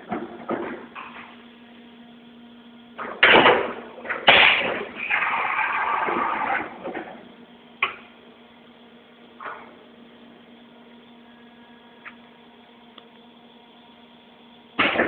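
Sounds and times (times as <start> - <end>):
steady low hum: 0.0 - 15.0
loud metallic clunks: 3.0 - 5.3, 14.8 - 15.0.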